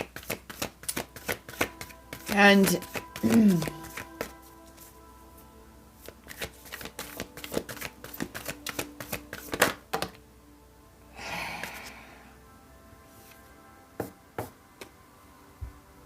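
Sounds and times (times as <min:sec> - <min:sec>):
cards clicking and snapping: 0:00.0 - 0:04.4, 0:06.0 - 0:10.2
papery swish of cards: 0:00.0 - 0:04.9, 0:06.0 - 0:09.8
soft background music: 0:00.0 - 0:16.0.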